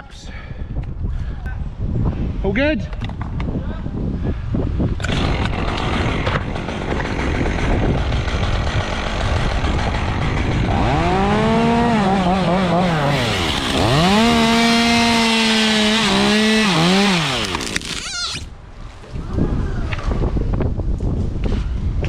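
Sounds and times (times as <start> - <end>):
wind on microphone: 0.0 - 22.0
chainsaw revving and cutting: 5.0 - 18.5.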